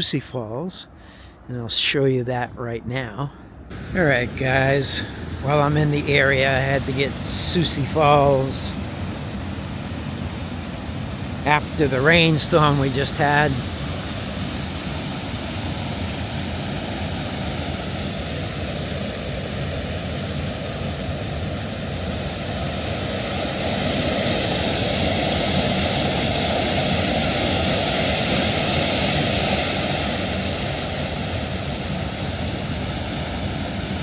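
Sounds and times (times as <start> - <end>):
waterfall rushing: 3.7 - 18.6.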